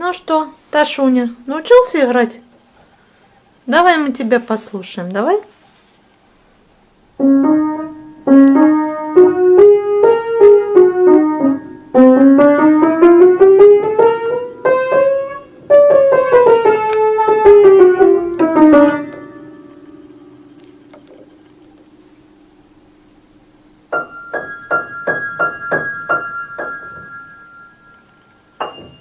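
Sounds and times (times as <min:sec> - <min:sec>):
piano melody: 0:07.2 - 0:21.8, 0:23.8 - 0:29.0.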